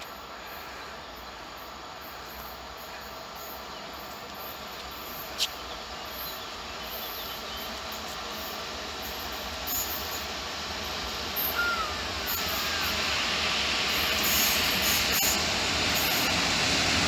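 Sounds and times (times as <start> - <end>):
faint insects chirping: 0.0 - 17.0
train rumbling: 0.0 - 17.0.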